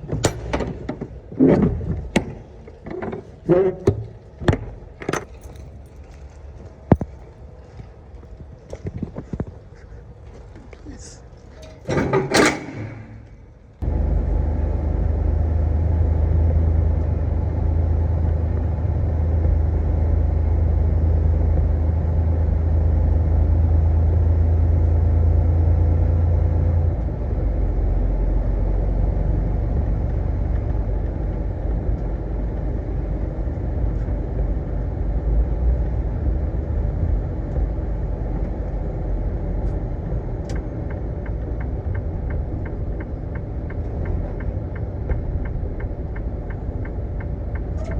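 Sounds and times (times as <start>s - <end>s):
truck diesel engine rumbling: 0.0s - 8.7s, 10.8s - 47.9s.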